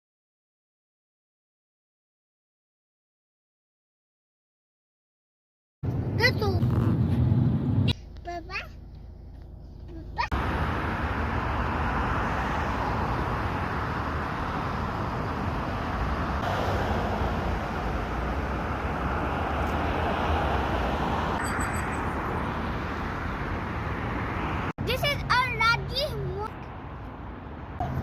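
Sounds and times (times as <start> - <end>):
car driving rumble: 5.8 - 28.0.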